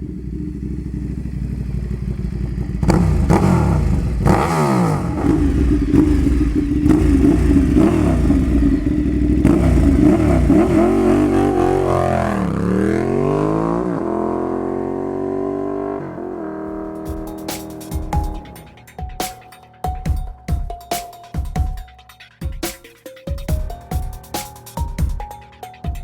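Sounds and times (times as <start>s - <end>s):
motorcycle engine revving: 0.0s - 18.9s.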